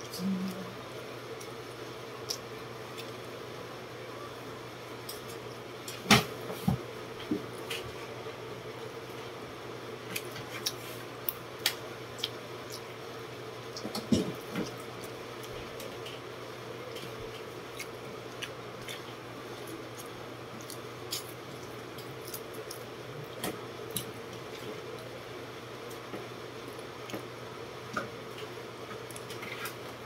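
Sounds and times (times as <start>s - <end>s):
electric fan hum: 0.0s - 30.0s
wet chewing: 10.0s - 13.0s, 13.7s - 25.1s.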